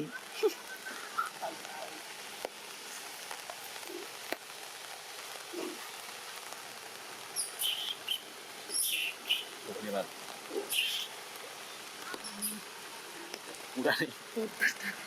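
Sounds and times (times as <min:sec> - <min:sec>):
steady rain hiss: 0:00.0 - 0:15.0
faint clicks: 0:12.0 - 0:12.6, 0:13.2 - 0:13.6.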